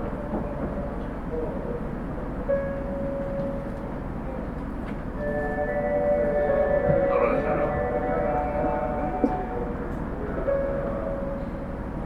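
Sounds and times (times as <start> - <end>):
wheels rumbling on rail: 3.2 - 12.0.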